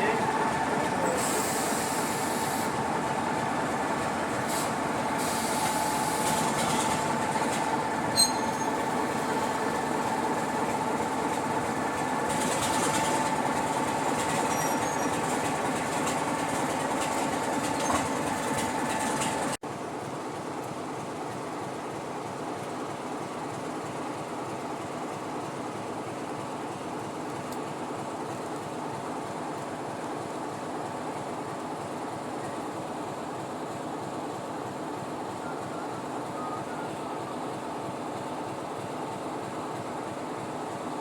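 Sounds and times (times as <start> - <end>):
train wheels rumbling on rail: 0.0 - 19.6
train whine: 0.0 - 19.6.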